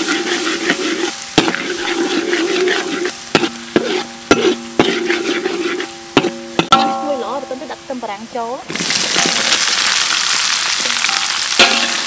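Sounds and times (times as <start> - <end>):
aromatics sizzling in oil: 0.0 - 12.0
metal ladle knocking on wok: 6.2 - 7.4, 11.6 - 12.0.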